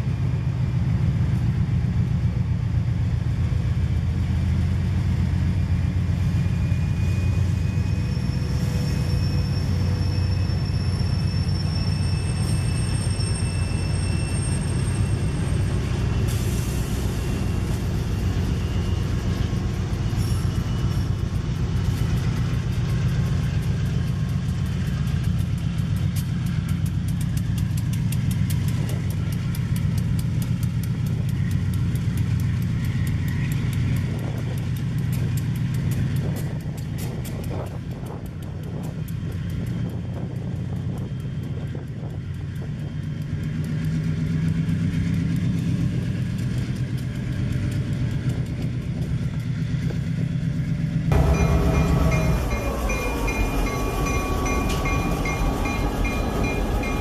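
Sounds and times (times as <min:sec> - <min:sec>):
locomotive engine rumble: 0:00.0 - 0:57.0
faint high squeals: 0:05.6 - 0:16.5, 0:17.1 - 0:21.5.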